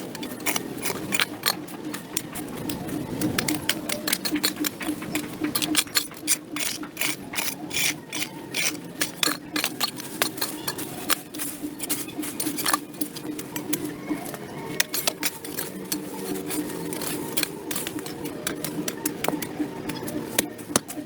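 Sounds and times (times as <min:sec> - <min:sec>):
hand tool scraping dirt: 0:00.0 - 0:13.5, 0:14.8 - 0:19.0
steady low hum: 0:00.0 - 0:21.0.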